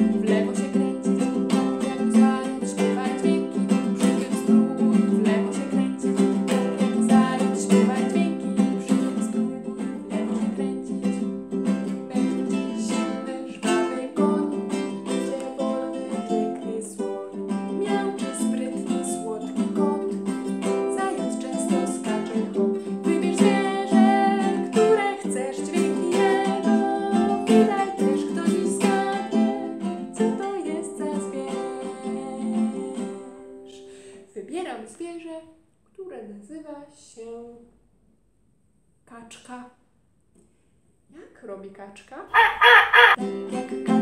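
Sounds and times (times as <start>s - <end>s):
ukulele strumming: 0.0s - 34.1s, 43.0s - 44.0s.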